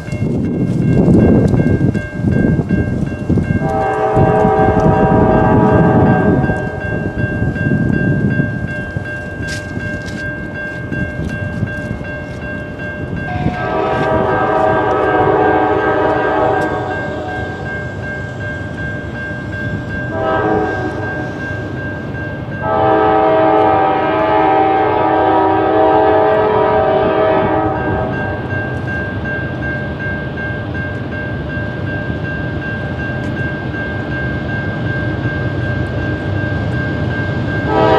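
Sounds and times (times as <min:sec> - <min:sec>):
crossing signal bell ringing: 0:00.0 - 0:37.9
rumble of passing train: 0:00.0 - 0:37.9
locomotive air horn blasts: 0:03.6 - 0:06.8, 0:13.3 - 0:17.7, 0:20.1 - 0:21.3, 0:22.6 - 0:28.2, 0:37.7 - 0:37.9.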